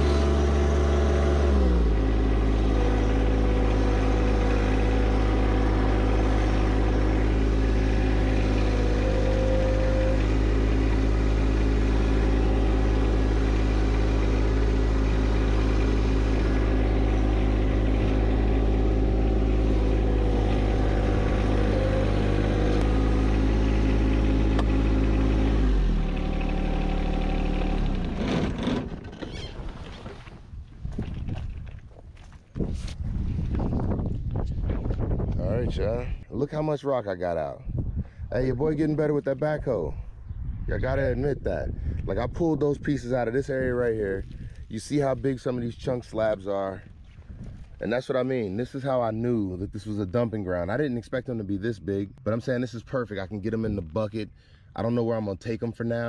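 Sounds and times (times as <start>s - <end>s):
tractor diesel engine running: 0.0s - 30.6s.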